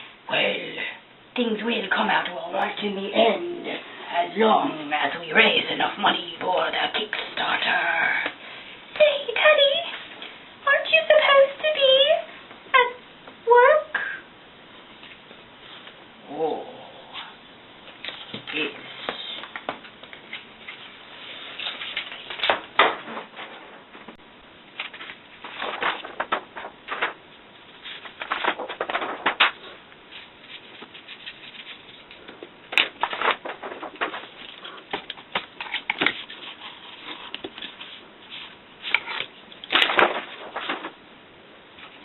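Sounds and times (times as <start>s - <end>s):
rustling and crackling clicks: 17.9s - 41.0s.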